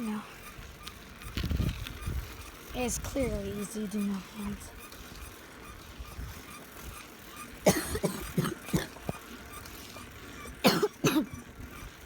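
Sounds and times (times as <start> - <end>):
person coughing: 7.6 - 9.2, 10.6 - 11.4.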